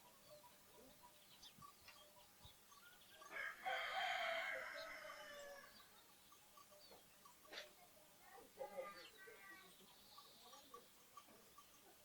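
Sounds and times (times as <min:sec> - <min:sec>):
small birds chirping: 0:00.0 - 0:12.0
rooster crowing: 0:03.3 - 0:05.7.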